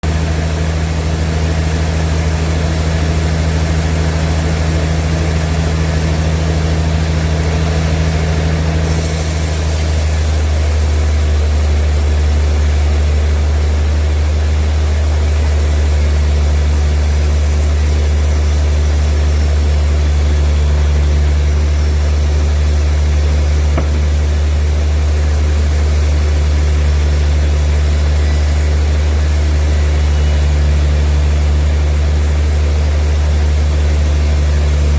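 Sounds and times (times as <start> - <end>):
machinery engine humming: 0.0 - 34.9
faint high whine: 26.9 - 31.9.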